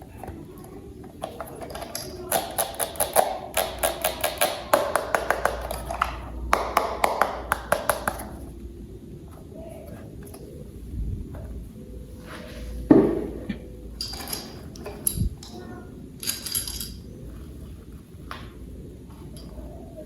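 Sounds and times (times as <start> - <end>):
plastic toy parts clicking: 1.1 - 6.2.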